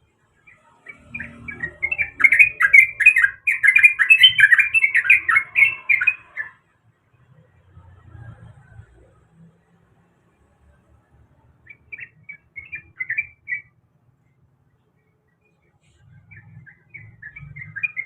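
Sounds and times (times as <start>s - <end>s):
bird chirping song: 0.0s - 6.8s, 11.3s - 18.0s.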